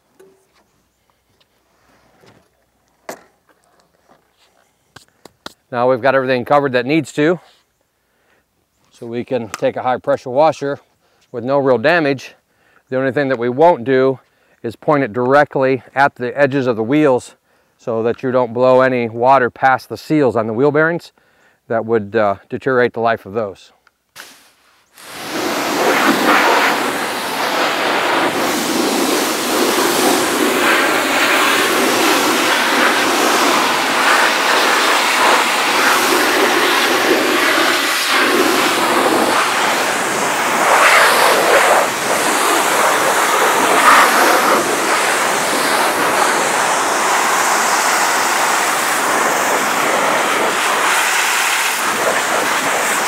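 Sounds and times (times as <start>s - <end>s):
pressure washer spraying: 24.2s - 53.0s.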